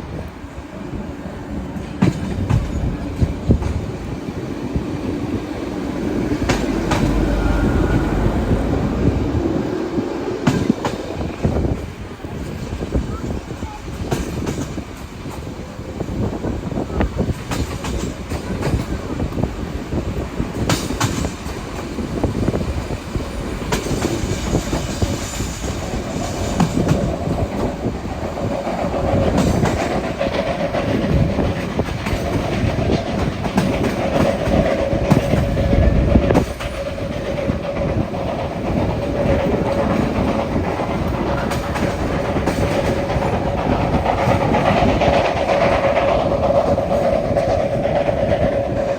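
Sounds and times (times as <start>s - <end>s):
train rumble: 0.0s - 48.9s
train wheels clicking over rail joints: 0.0s - 48.9s
steady high tone: 5.5s - 10.1s.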